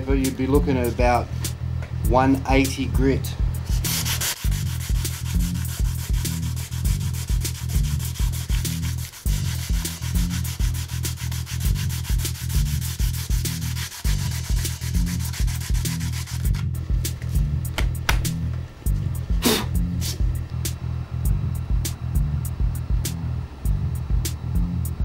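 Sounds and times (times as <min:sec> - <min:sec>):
music with deep bass and beat: 0:00.0 - 0:25.0
sandpaper on wood: 0:03.7 - 0:16.7.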